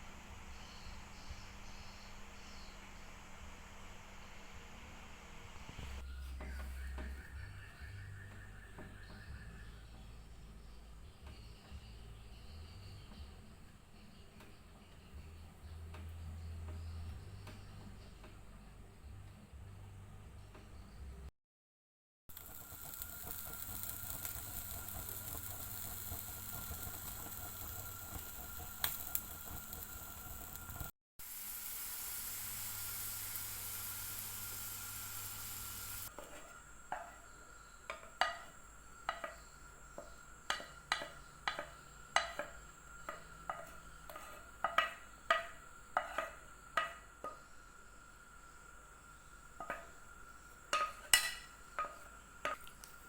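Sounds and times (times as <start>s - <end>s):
food sizzling in hot oil: 22.3s - 53.0s
utensils clinking on dishes: 50.8s - 52.6s.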